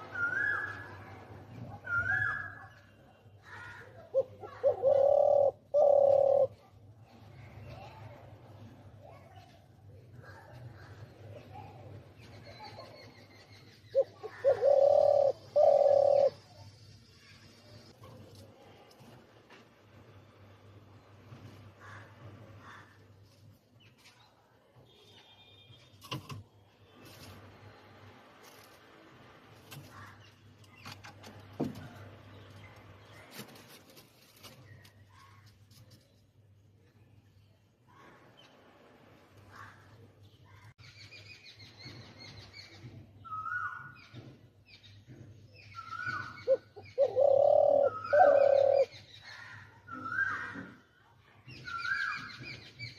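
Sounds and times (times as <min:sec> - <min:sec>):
dove cooing: 0:04.1 - 0:06.7, 0:13.9 - 0:16.5, 0:46.0 - 0:49.0.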